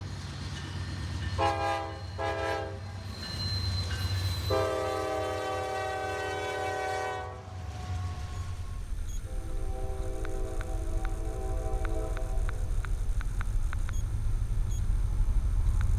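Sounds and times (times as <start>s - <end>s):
locomotive air horn blasts: 1.4s - 3.0s, 4.5s - 12.7s
steady low rumble: 7.6s - 15.9s.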